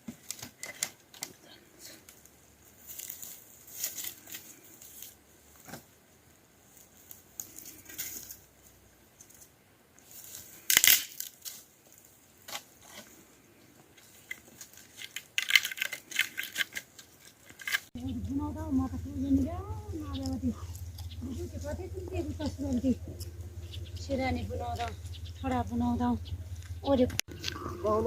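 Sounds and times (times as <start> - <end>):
rustling and crinkling objects: 0.0 - 18.0.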